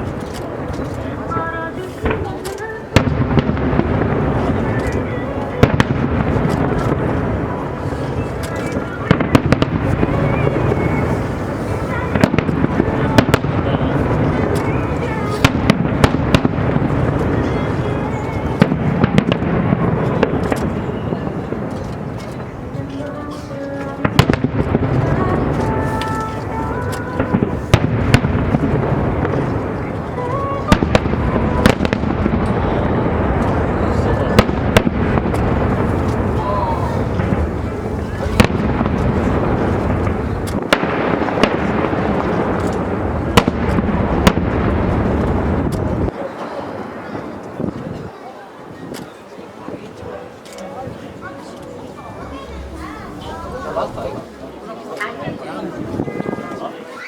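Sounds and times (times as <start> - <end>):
rumble of firework bursts: 0.0 - 22.9, 23.9 - 46.2.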